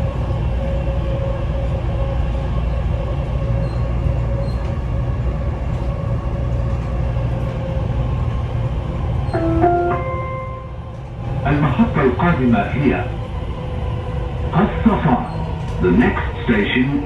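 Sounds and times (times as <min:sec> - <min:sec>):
metro train rumble: 0:00.0 - 0:17.0.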